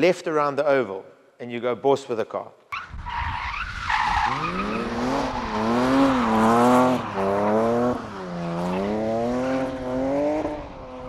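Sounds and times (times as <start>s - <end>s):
race car engine revving: 4.2s - 11.0s.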